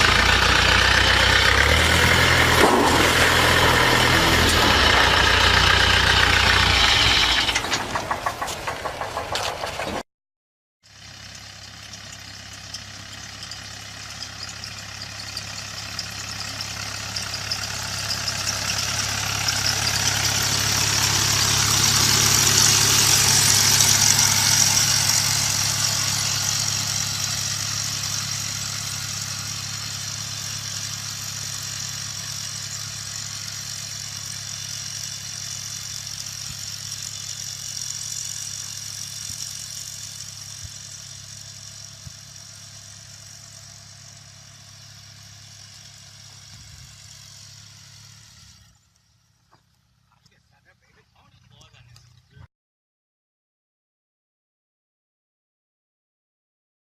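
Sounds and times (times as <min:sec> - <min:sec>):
farm machinery engine running: 0:00.0 - 0:10.0, 0:10.9 - 0:52.4.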